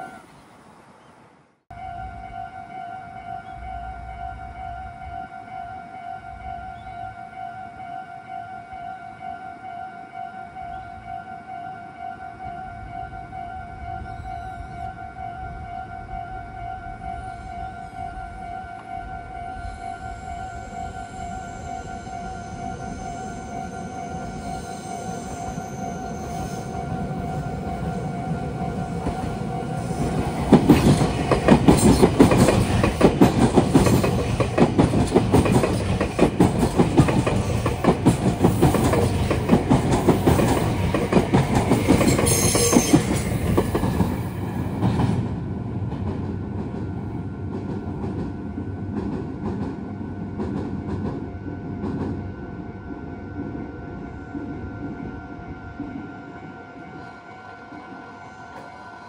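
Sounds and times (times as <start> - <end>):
train wheels clattering over rails: 28.4 - 46.9.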